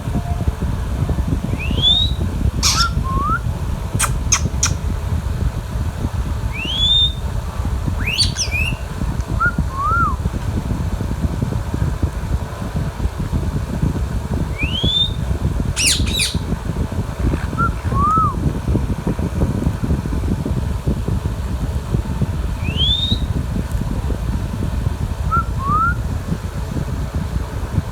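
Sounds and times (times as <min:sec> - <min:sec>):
steady low rumble: 0:00.0 - 0:27.9
parakeet whistled calls: 0:01.4 - 0:03.4, 0:04.0 - 0:04.8, 0:06.5 - 0:07.3, 0:08.0 - 0:10.2, 0:14.5 - 0:16.6, 0:17.2 - 0:18.4, 0:22.6 - 0:23.3.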